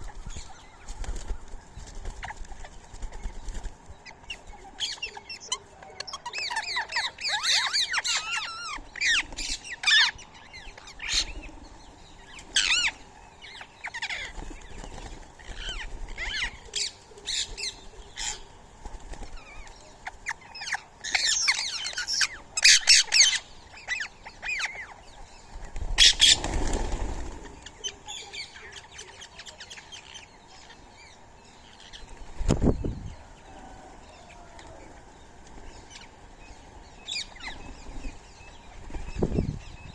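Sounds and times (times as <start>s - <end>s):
wing flutter: 0.0s - 4.8s, 25.4s - 27.9s
birds squawking and chirping: 0.0s - 39.9s.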